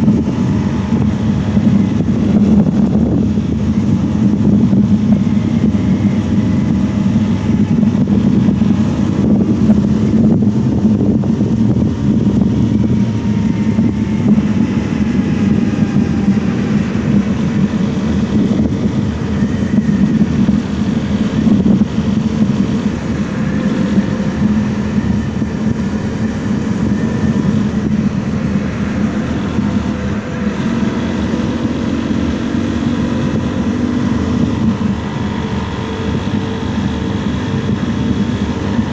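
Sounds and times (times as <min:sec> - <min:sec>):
motorcycle engine running: 0:00.0 - 0:38.9
wind rush: 0:00.0 - 0:38.9.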